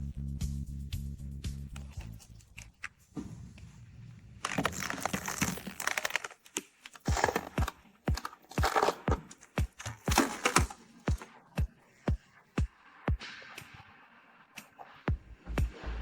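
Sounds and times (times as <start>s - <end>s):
crinkling rustling: 1.8s - 11.8s
electronic music with kick drum: 7.1s - 16.0s.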